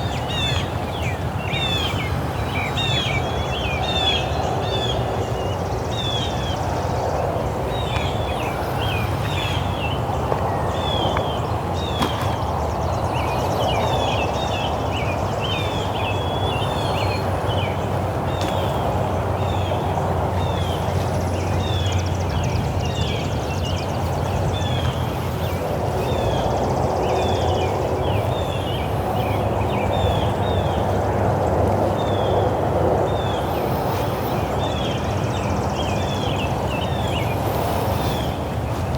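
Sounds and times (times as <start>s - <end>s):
birds chirping and whistling: 7.7s - 31.0s, 33.0s - 38.9s.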